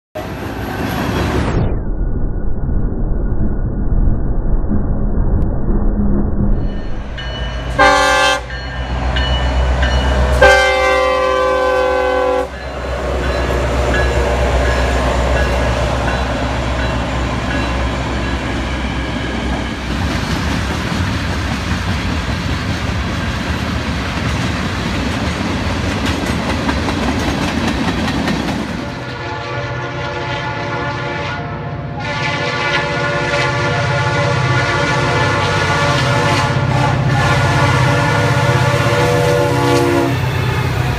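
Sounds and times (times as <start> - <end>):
freight train rolling past: 0.2 - 1.7, 6.4 - 40.9
diesel locomotive engines humming: 7.0 - 40.9
continuous locomotive horn: 7.6 - 19.8, 28.7 - 40.9
locomotive horn blasts: 7.7 - 8.6, 10.1 - 13.1, 29.0 - 40.7.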